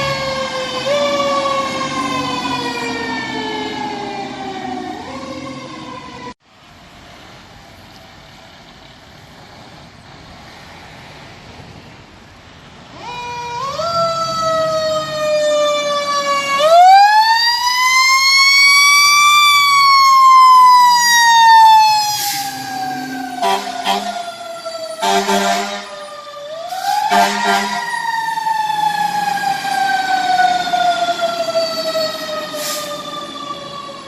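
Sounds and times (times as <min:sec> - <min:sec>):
fire engine siren wailing: 0:00.0 - 0:06.4, 0:12.9 - 0:34.0
low road noise: 0:00.0 - 0:34.0.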